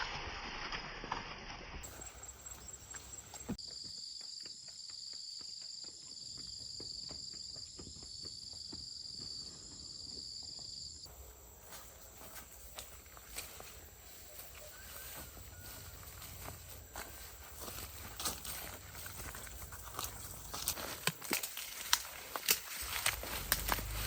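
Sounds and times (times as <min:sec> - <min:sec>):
shrill insect chorus: 0:01.8 - 0:04.5, 0:08.7 - 0:24.0
soft footsteps: 0:11.0 - 0:24.0.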